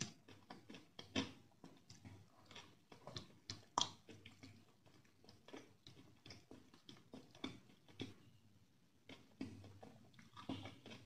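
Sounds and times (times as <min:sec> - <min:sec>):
wet chewing smacks: 0:00.0 - 0:08.2.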